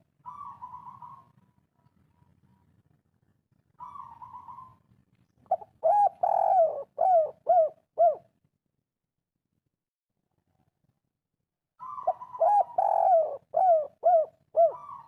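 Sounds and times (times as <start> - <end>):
dove cooing: 0.2 - 1.4, 3.8 - 4.8, 5.5 - 8.3, 11.8 - 15.0.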